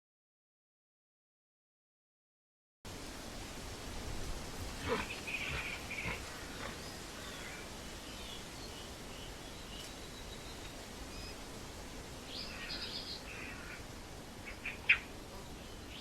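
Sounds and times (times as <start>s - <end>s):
small birds chirping: 4.6s - 16.0s.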